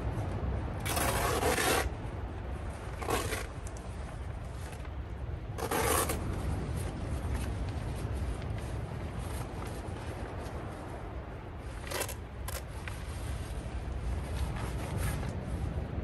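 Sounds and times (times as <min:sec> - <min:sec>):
steady low rumble: 0:00.0 - 0:16.0
material scraping on tent: 0:00.8 - 0:01.9, 0:02.9 - 0:03.7, 0:05.6 - 0:07.2, 0:11.7 - 0:15.7.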